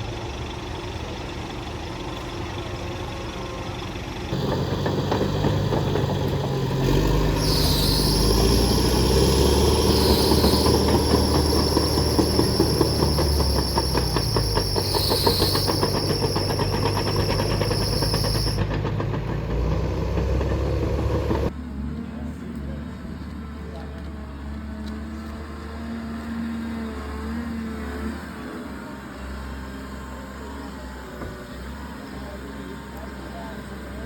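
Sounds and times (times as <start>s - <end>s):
diesel machinery running: 0.0s - 22.2s
high whine: 4.4s - 18.8s.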